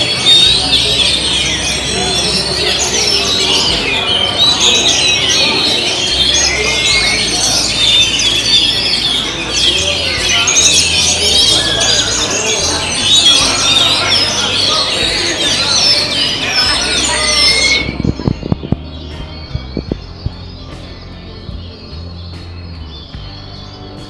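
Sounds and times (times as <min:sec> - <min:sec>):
many songbirds singing: 0:00.0 - 0:24.0.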